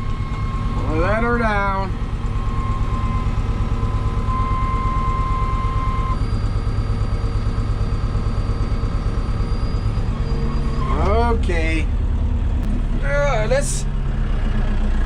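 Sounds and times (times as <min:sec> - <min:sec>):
thin high whine: 0:00.0 - 0:11.9
tractor diesel engine running: 0:00.0 - 0:15.0.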